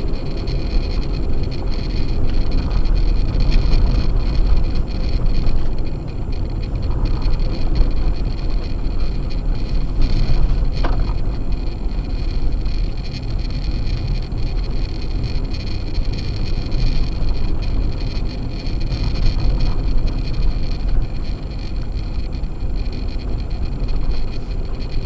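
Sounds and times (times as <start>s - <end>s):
tires and engine rumbling on snow: 0.0s - 25.0s.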